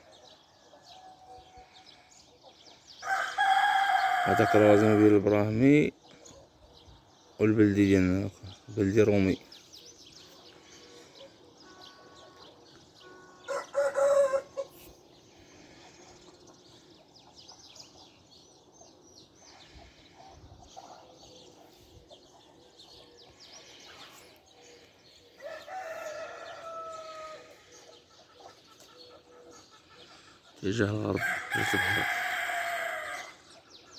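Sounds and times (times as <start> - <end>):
small birds chirping: 0.0 - 33.9
rooster crowing: 3.0 - 5.2, 11.6 - 14.7, 25.4 - 27.6, 31.2 - 33.4.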